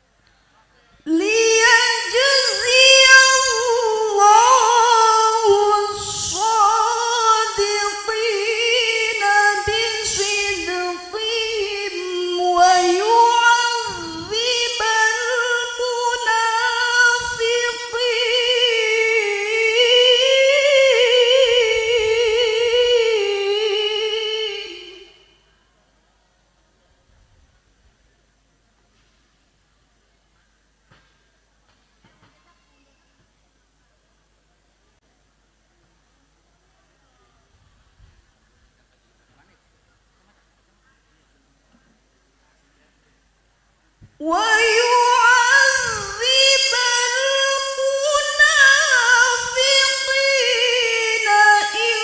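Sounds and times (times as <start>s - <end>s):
woman reciting melodically: 1.0s - 25.5s, 44.2s - 52.0s.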